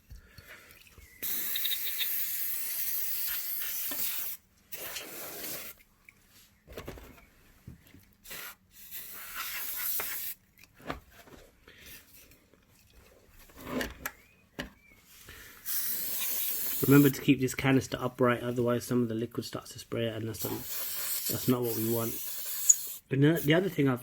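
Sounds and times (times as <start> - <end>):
compressed air duster hissing: 1.2 - 5.8, 8.2 - 10.4, 15.6 - 17.2, 20.4 - 23.7.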